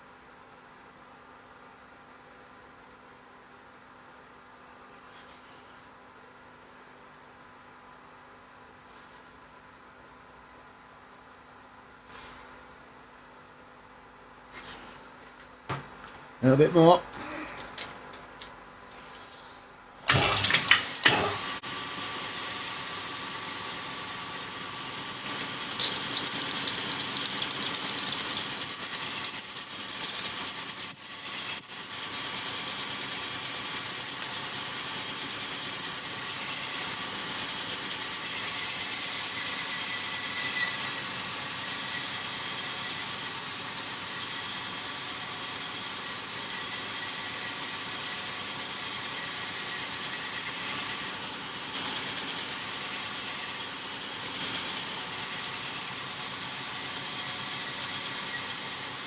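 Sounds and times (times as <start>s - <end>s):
cylinder hone grinding and squealing: 23.1s - 43.2s.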